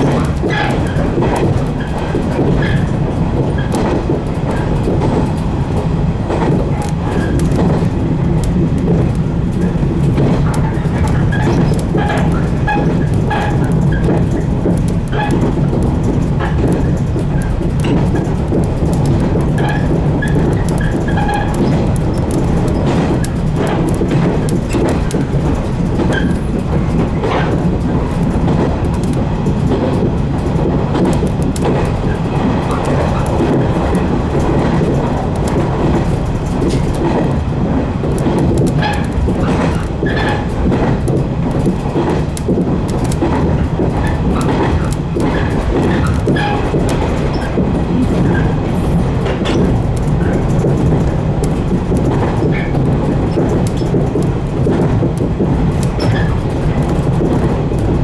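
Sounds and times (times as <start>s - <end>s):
electric train rumbling: 0.0s - 58.0s
wheels clicking over rail joints: 0.0s - 58.0s.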